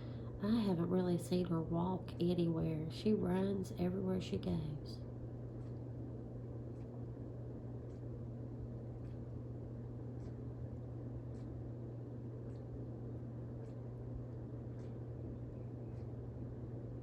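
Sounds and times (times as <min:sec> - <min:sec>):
soft background hiss: 0:00.0 - 0:05.2
low electrical hum: 0:00.0 - 0:17.0.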